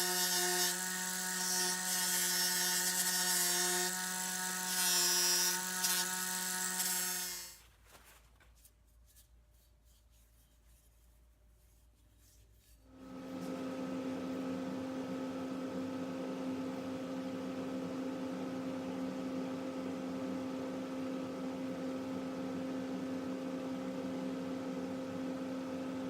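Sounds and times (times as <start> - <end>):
electric motor humming: 0.0 - 7.6.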